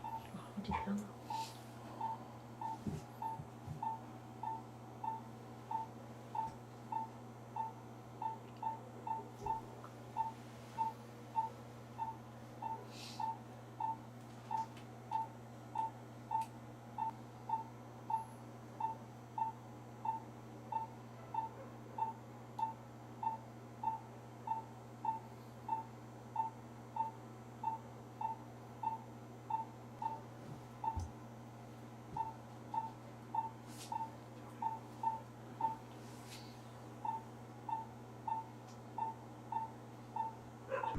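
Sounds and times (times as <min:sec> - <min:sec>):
patient monitor beeping: 0:00.0 - 0:30.2, 0:30.8 - 0:31.1, 0:32.2 - 0:40.4
low electrical hum: 0:00.0 - 0:40.9.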